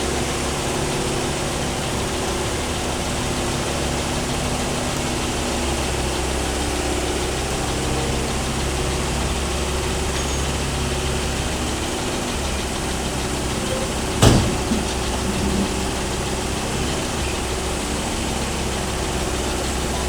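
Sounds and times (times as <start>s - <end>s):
diesel engine running: 0.0s - 20.0s
sharp knocks: 13.8s - 15.8s.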